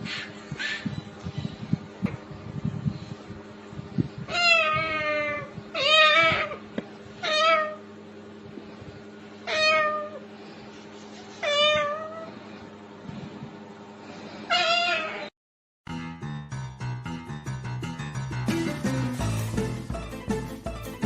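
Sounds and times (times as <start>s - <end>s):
cat meowing: 4.3s - 6.6s, 7.2s - 7.8s, 9.5s - 10.2s, 11.4s - 12.3s, 14.5s - 15.3s.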